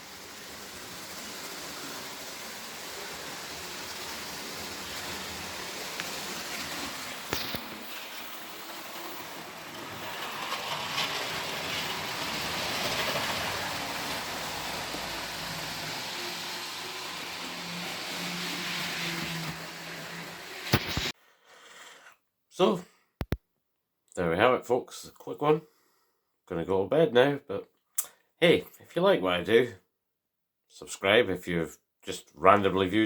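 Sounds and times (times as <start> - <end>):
model trains running on track: 0.0 - 21.1.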